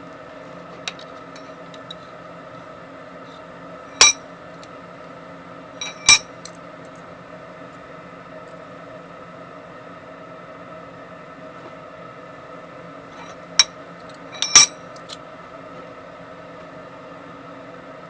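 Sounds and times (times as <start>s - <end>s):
steady hum: 0.0s - 18.0s
metal-on-metal strikes: 4.0s - 4.2s, 5.8s - 6.4s, 14.4s - 14.8s.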